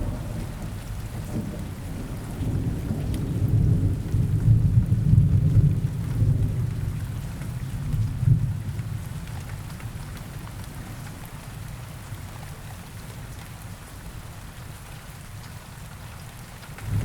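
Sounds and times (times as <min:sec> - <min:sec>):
rumble of thunder: 0:00.0 - 0:09.7, 0:16.7 - 0:17.0
rain falling in a forest: 0:00.0 - 0:17.0.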